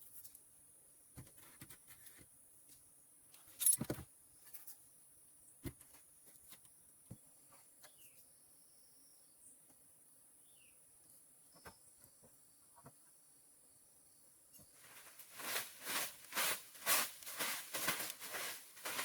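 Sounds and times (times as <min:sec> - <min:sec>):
steady high hiss: 0:14.6 - 0:19.0
rustling: 0:14.7 - 0:19.0.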